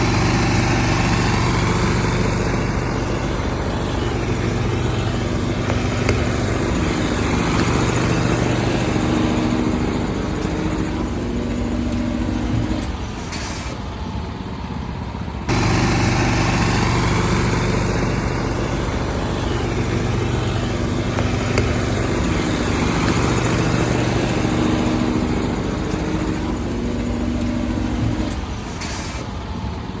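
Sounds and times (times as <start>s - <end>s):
truck engine running: 0.0s - 30.0s
short hiss: 28.8s - 29.3s.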